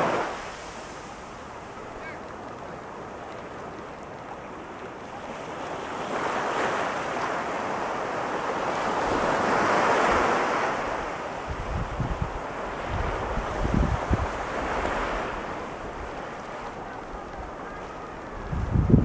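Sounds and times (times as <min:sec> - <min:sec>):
ocean surf breaking on beach: 0:00.0 - 0:19.0
wind buffeting microphone: 0:11.0 - 0:19.0.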